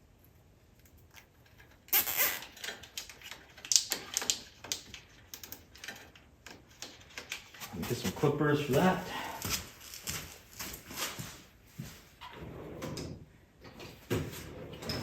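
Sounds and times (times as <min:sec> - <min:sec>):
plastic clicks and rattles: 0:01.1 - 0:07.7
zip tie pulled tight: 0:01.9 - 0:02.5.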